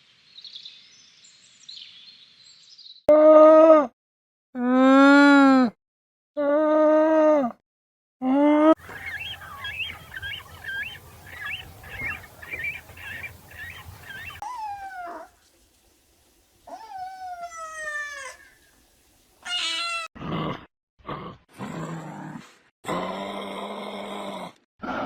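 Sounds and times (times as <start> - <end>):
low hum: 8.8 - 14.4
animal drawn-out cries: 8.8 - 15.4, 16.7 - 18.7, 19.4 - 20.1.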